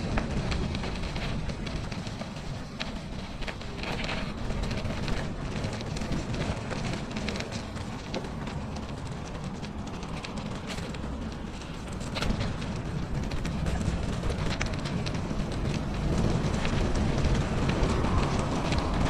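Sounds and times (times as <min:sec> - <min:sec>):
bicycle tyres crunching over snow: 0:00.0 - 0:19.0
wind rumble on microphone: 0:00.0 - 0:19.0.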